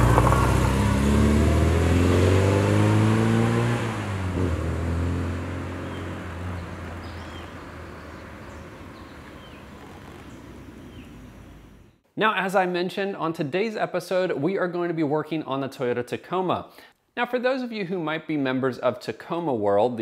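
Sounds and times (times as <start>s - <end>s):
car engine pulling away: 0.0s - 11.8s.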